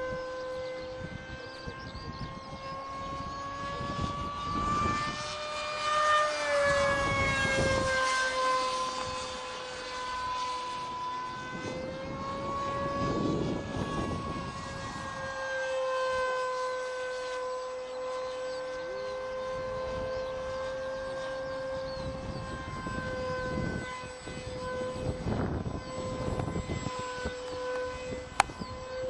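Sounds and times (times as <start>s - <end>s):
model jet motor whine: 0.0s - 29.0s.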